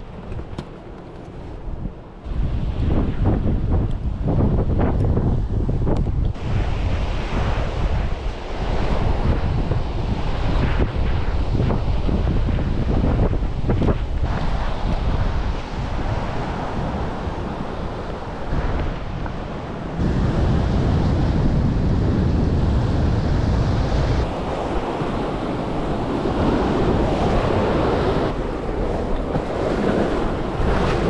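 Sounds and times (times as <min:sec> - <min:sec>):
wind buffeting microphone: 0:00.0 - 0:31.0
surf breaking on shore: 0:06.3 - 0:31.0.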